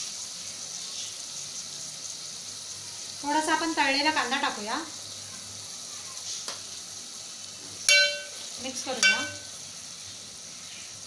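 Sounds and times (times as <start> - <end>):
masala sizzling in oil: 0.0 - 11.0
spoon clanging on metal pot: 7.9 - 9.5.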